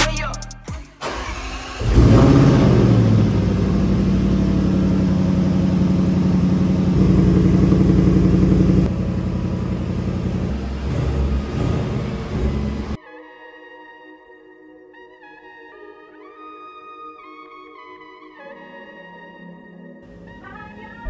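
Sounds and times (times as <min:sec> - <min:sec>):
car engine starting and idling: 0:01.0 - 0:13.0.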